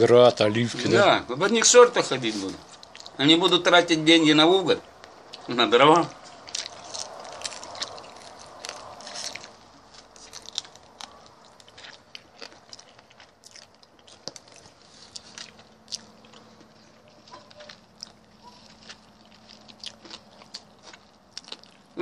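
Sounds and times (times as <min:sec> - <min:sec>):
person chewing food: 0:02.6 - 0:03.2, 0:06.1 - 0:22.0.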